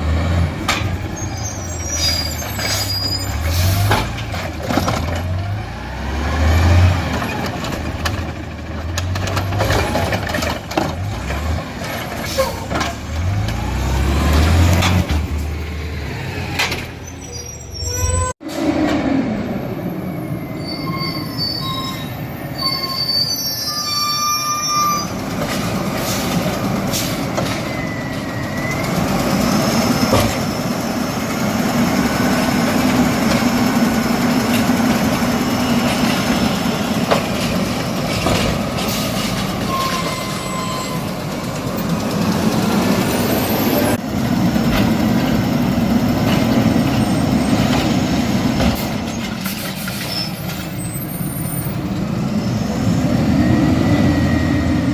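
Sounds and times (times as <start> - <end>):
garbage truck diesel engine: 0.0 - 54.9
high-pitched hydraulic squeals: 1.1 - 3.9, 12.2 - 12.8, 16.8 - 18.4, 20.0 - 25.2, 27.0 - 29.0, 39.6 - 41.2, 49.1 - 51.8.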